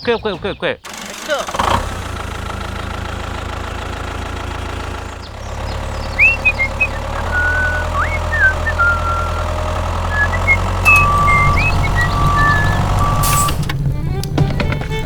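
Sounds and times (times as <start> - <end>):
vehicle engine idling: 0.8 - 15.0
whistled chirps and glides: 5.4 - 13.6.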